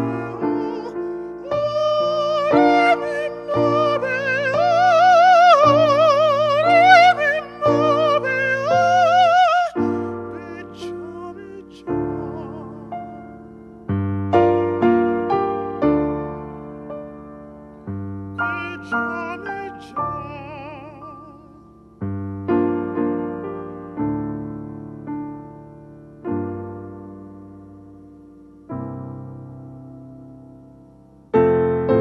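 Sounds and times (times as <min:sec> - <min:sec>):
high singing voice with vibrato: 0:00.0 - 0:12.9, 0:18.4 - 0:21.5
piano chords: 0:00.0 - 0:32.0.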